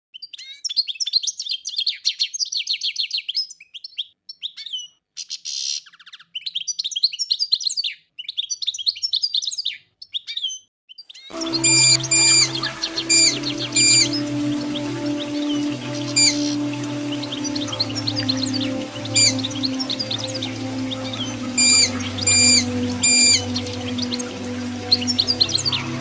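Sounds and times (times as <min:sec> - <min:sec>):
small birds chirping: 0:00.2 - 0:26.0
harsh buzzy bird call: 0:11.3 - 0:24.2
music: 0:11.3 - 0:26.0.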